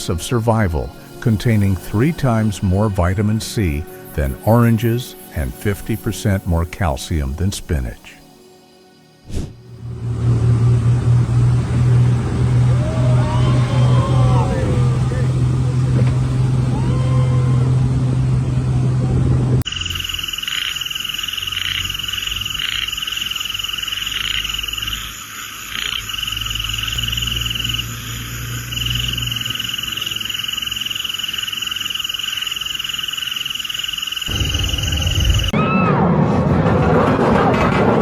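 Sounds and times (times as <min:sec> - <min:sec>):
faint low rumble: 0:09.6 - 0:19.6, 0:34.3 - 0:37.9.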